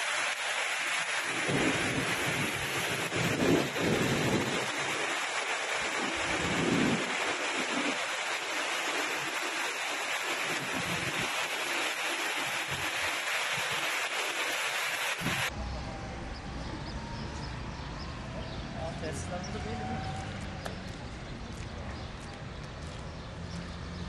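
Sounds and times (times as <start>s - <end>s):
heavy rain pouring: 0.0s - 21.3s
low rumbles: 15.2s - 24.0s.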